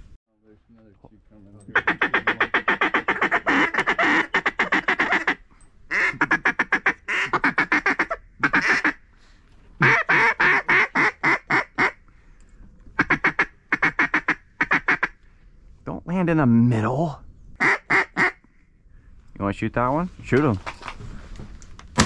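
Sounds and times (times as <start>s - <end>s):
duck quacking: 1.7s - 9.0s, 9.8s - 12.0s, 13.0s - 15.2s, 17.6s - 18.4s.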